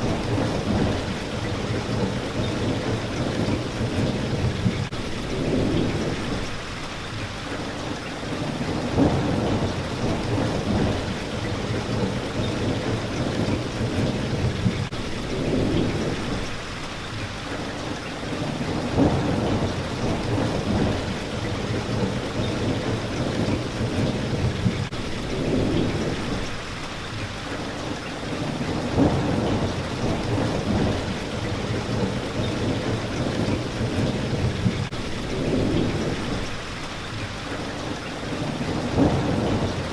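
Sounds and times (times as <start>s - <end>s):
rolling thunder: 0.0s - 6.5s, 8.4s - 16.5s, 18.3s - 26.5s, 28.3s - 36.6s, 38.3s - 39.9s
rain beating on a window: 0.0s - 39.9s.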